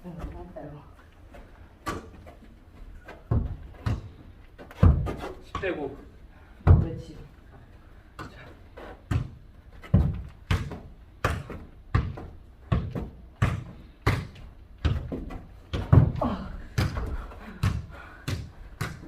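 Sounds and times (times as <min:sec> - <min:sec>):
ball being kicked thuds: 0:03.2 - 0:05.7, 0:09.0 - 0:19.0.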